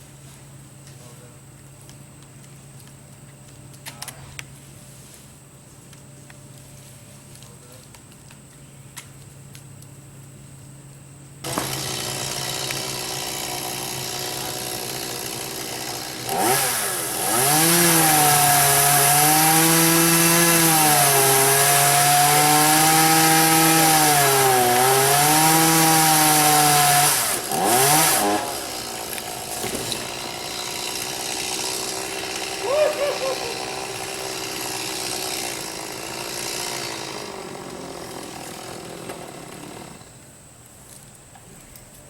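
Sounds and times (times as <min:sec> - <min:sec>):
chainsaw running: 0:11.4 - 0:40.2.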